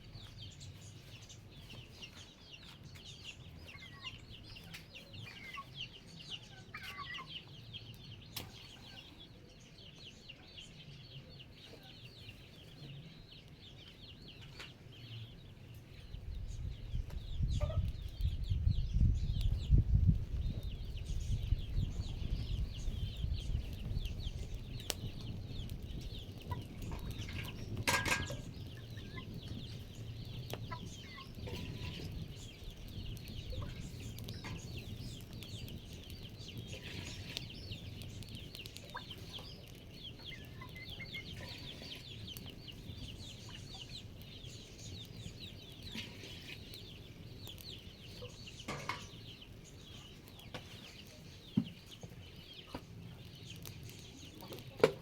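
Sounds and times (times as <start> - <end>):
chickens clucking: 1.0 - 7.6, 17.4 - 18.1, 26.0 - 35.4, 36.2 - 53.3.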